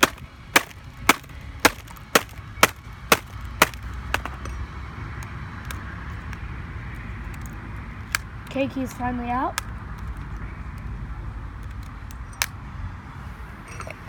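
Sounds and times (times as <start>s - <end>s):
sharp blows on laptop keyboard: 0.0s - 4.4s.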